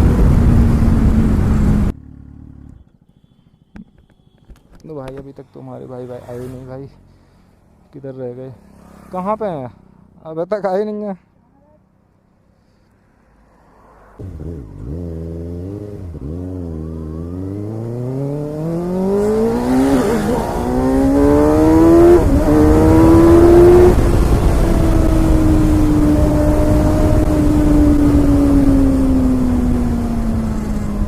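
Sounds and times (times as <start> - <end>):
motorcycle engine revving: 14.0 - 31.0.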